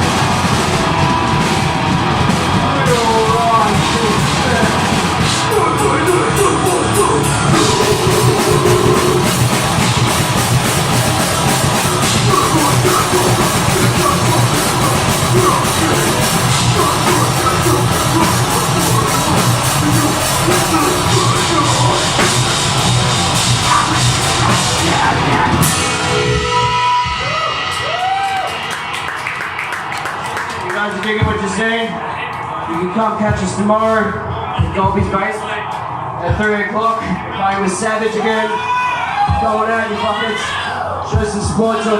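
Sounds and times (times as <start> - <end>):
loud dense drums: 0.0 - 29.5
distorted guitars: 0.0 - 30.3
ringing guitar tone: 6.2 - 27.3.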